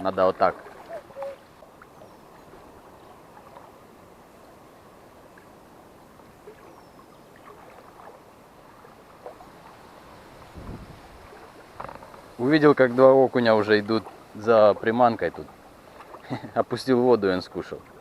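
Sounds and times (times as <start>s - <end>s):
water lapping at bank: 0.0s - 18.0s
strong wind rushing: 10.5s - 11.1s.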